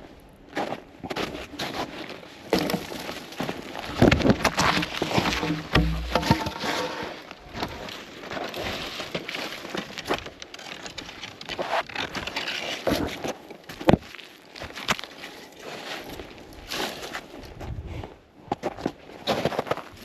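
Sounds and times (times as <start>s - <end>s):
rustling: 1.7s - 13.0s
wood and brush snapping: 2.5s - 7.7s, 9.0s - 13.1s.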